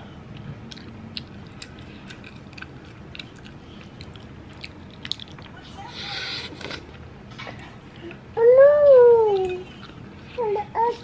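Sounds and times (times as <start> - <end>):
chewing noodles: 0.7 - 5.6.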